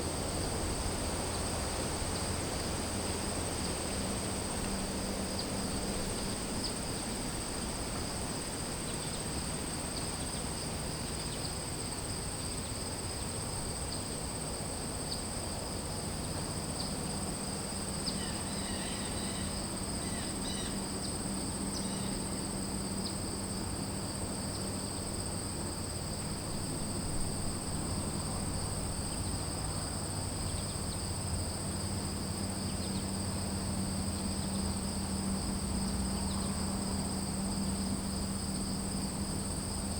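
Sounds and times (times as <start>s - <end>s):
insects calling: 0.0s - 39.9s
low steady hum: 24.2s - 39.9s.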